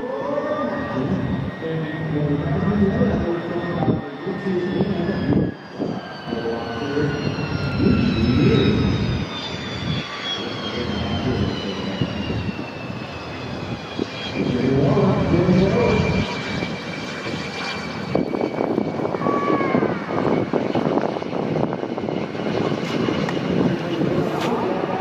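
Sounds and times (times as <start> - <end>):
jet engine whine: 0.0 - 25.0.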